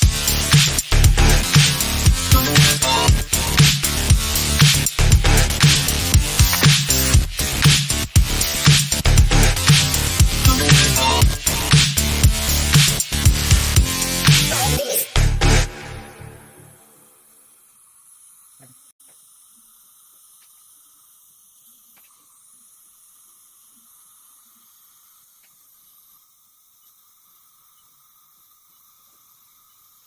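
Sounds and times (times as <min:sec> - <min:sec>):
faint steady hiss: 0:16.6 - 0:30.0.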